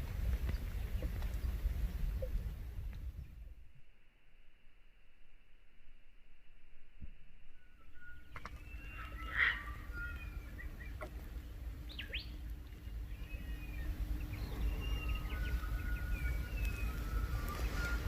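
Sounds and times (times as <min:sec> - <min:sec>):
steady low rumble: 0:00.0 - 0:18.0
birds whistling and chirping: 0:07.6 - 0:18.0.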